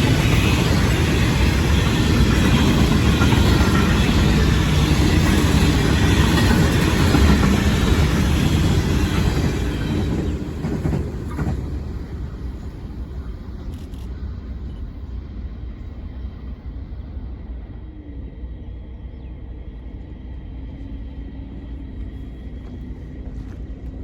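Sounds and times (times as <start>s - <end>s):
train rumbling and rattling past: 0.0s - 24.0s.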